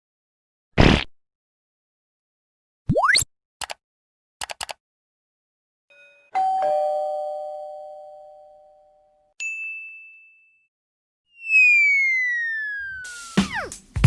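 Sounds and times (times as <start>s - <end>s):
short clicks: 3.6s - 3.8s, 4.4s - 4.8s
doorbell chime: 5.9s - 10.7s.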